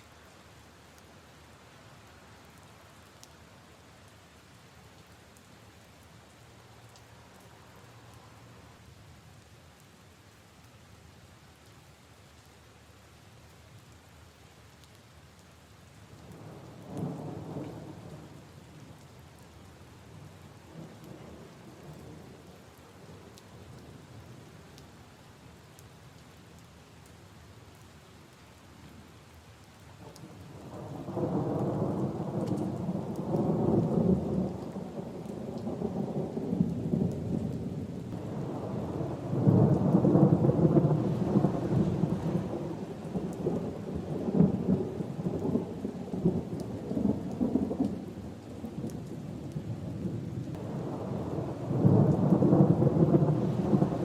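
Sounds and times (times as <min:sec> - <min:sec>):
light rain: 0:00.0 - 0:54.0
thunder rumbling: 0:30.7 - 0:48.8, 0:50.6 - 0:54.0.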